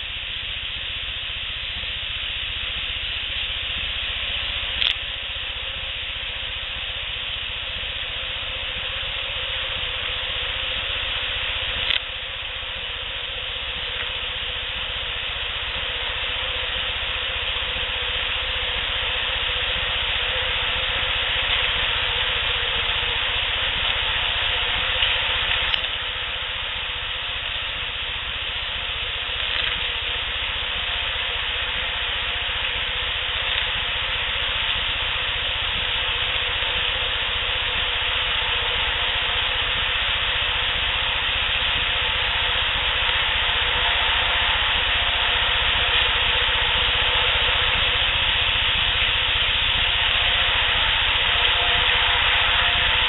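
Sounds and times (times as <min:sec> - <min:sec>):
steady outdoor hiss: 0:00.0 - 0:53.0
sharp click: 0:04.8 - 0:05.1, 0:11.8 - 0:12.1, 0:25.0 - 0:26.0.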